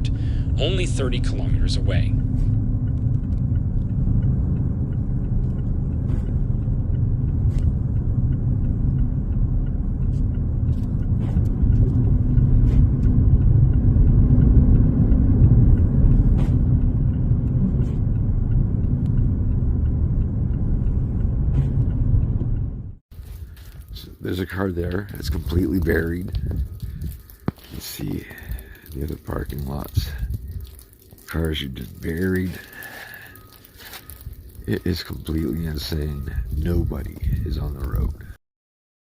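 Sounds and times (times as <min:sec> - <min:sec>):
car driving rumble: 0:00.0 - 0:38.4
faint ticks: 0:24.8 - 0:38.3.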